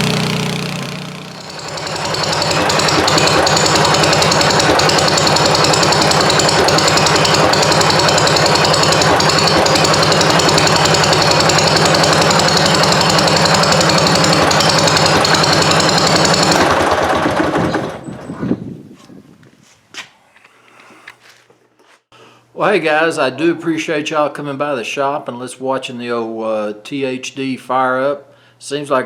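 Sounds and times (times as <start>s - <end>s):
two-cylinder engine running: 0.0s - 18.3s.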